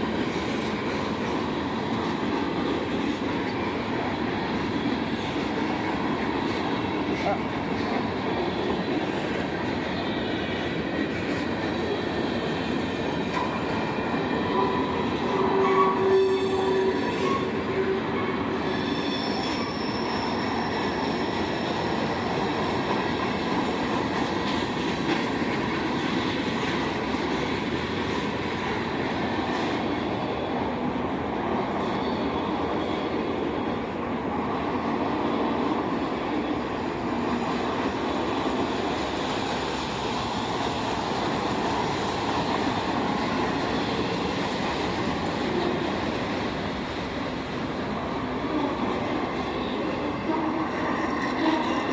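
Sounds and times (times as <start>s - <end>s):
railroad cars rolling on track: 0.0s - 51.9s
wheels squealing: 18.5s - 22.6s.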